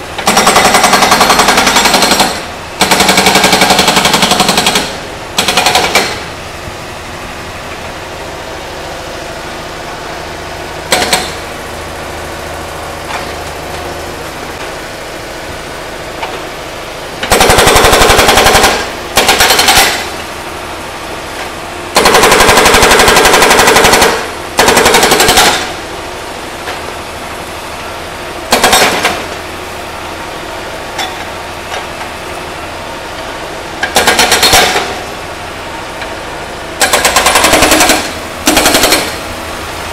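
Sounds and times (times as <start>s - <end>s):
diesel engine running: 0.0s - 39.9s
hydraulic breaker hammering metal: 0.2s - 6.3s, 10.9s - 11.5s, 17.2s - 20.2s, 21.9s - 25.8s, 28.5s - 29.4s, 33.8s - 35.1s, 36.8s - 39.3s.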